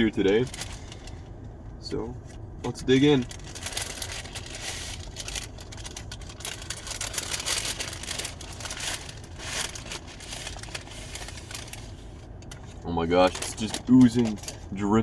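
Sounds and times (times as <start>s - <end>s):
paper wrapping crinkling: 2.9s - 14.6s.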